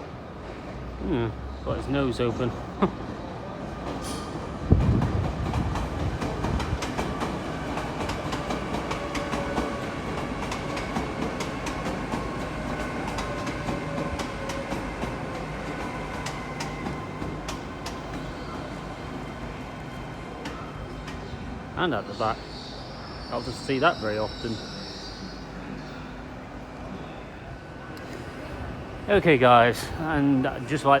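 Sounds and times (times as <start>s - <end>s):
train rumble with hum: 2.3s - 31.0s
train wheels clicking over rail joints: 3.9s - 18.4s.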